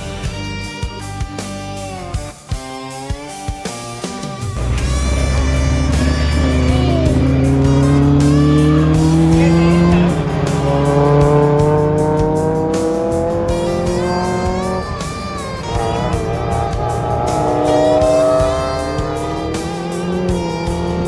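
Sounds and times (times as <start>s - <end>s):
car engine accelerating hard: 4.4s - 21.0s.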